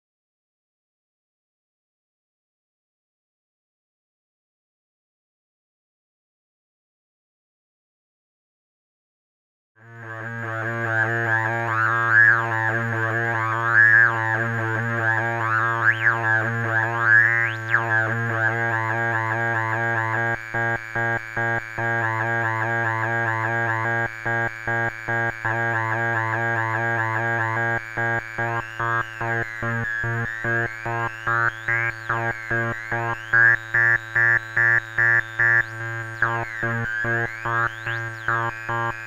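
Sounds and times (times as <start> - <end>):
buzzy synthesizer drone: 9.8 - 39.0.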